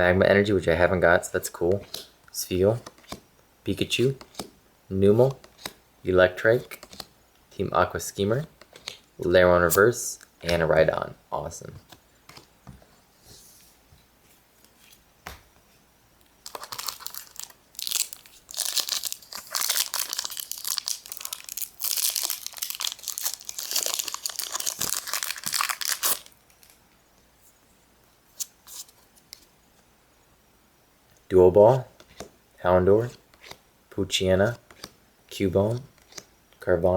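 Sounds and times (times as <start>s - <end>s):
foil wrapper tearing and crinkling: 16.5s - 26.8s.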